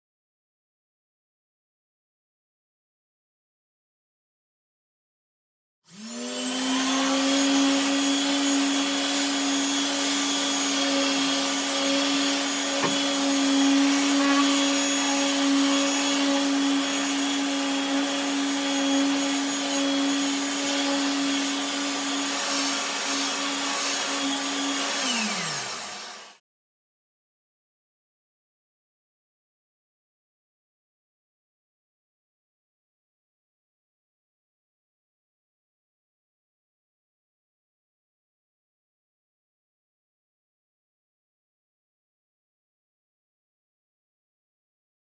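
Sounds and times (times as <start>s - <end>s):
power tool motor whirring: 5.9s - 26.4s.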